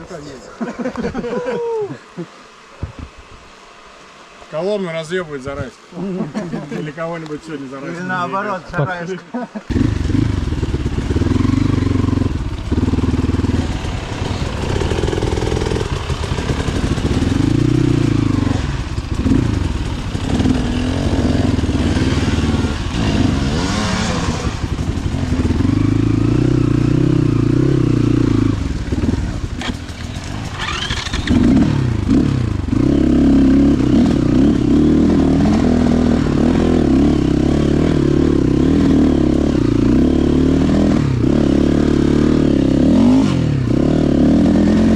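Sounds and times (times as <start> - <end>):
motorcycle engine revving: 9.6 - 44.9.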